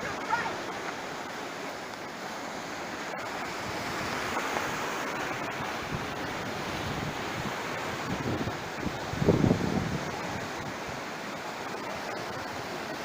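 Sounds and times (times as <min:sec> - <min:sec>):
sea surf washing onto shore: 0:00.0 - 0:13.0
wind on microphone: 0:05.6 - 0:11.0.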